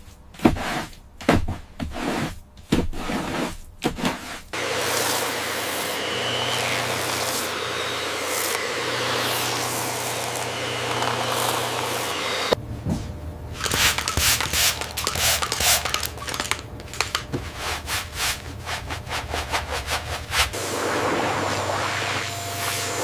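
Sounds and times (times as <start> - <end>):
rubbing strokes on a surface: 17.4 - 23.0.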